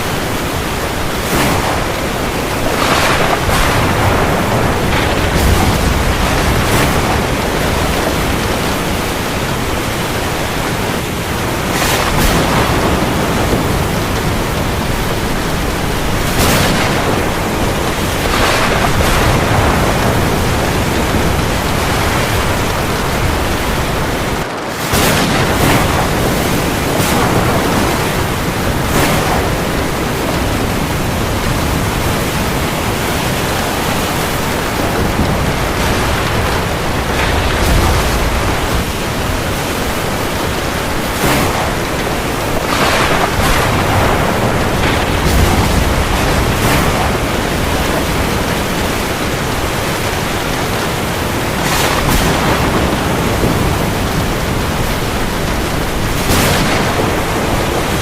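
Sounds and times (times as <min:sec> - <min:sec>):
heavy rain on the sea: 0:00.0 - 0:58.0.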